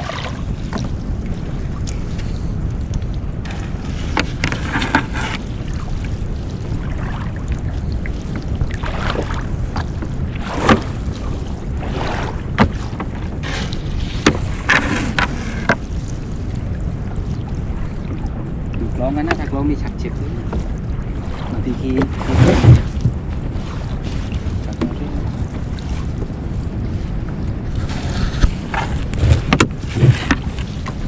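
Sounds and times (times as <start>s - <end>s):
wind rumble on microphone: 0.0s - 31.0s
net rustling and scraping: 3.5s - 5.5s.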